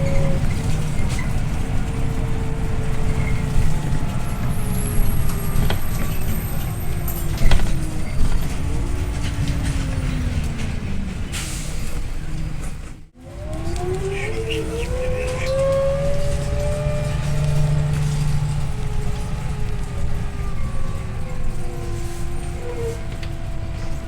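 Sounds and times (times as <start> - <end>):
bus engine and road rumble: 0.0 - 24.0.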